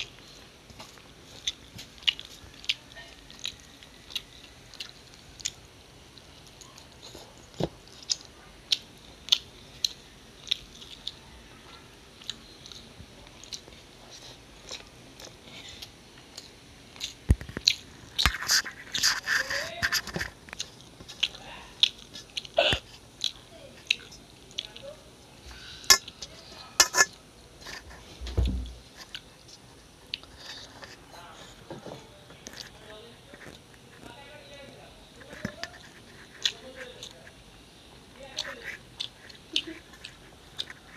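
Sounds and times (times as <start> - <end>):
person chewing food: 0.0 - 31.7, 35.2 - 37.7, 38.4 - 40.9
low thumps: 28.2 - 28.8.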